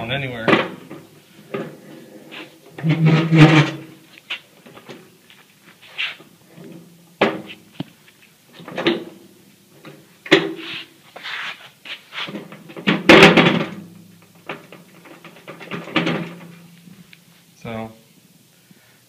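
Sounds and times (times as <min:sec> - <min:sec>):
knocks and clunks of objects: 0:00.4 - 0:01.9, 0:06.6 - 0:09.2, 0:09.8 - 0:10.7, 0:12.3 - 0:16.8
rustling: 0:00.7 - 0:09.0, 0:10.5 - 0:13.1
clattering bang: 0:12.4 - 0:16.8.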